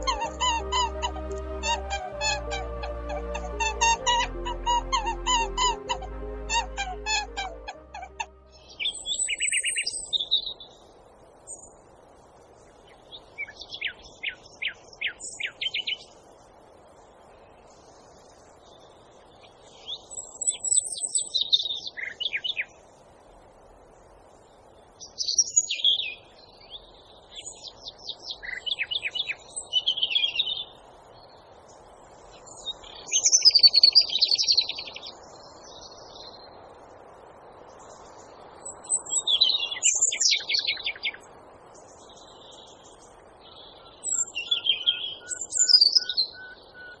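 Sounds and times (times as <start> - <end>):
faint background hiss: 0.0 - 47.0
songbird singing trills: 43.4 - 47.0.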